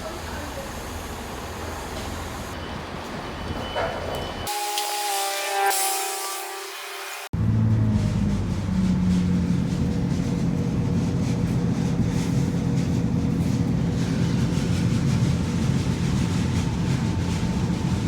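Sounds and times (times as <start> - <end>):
train rumbling: 7.3 - 18.0.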